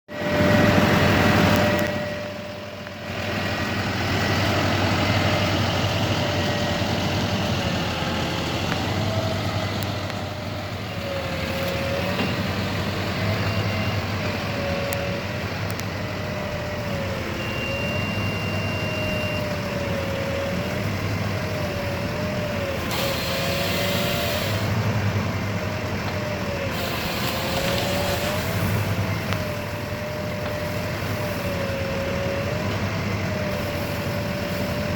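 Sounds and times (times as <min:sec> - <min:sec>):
wavering whine: 0:00.1 - 0:03.8
truck engine drone: 0:00.1 - 0:34.9
hiss: 0:26.7 - 0:28.9.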